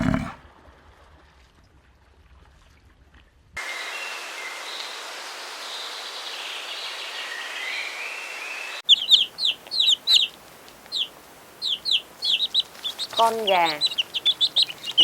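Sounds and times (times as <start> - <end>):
chickens chirping: 8.8 - 15.0.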